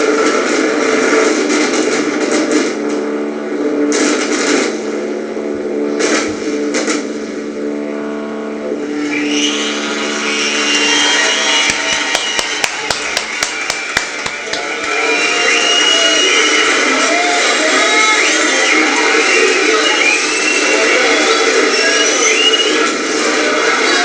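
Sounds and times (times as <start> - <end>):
steady held tone: 6.6 - 16.9
fireworks bursts: 9.3 - 23.2.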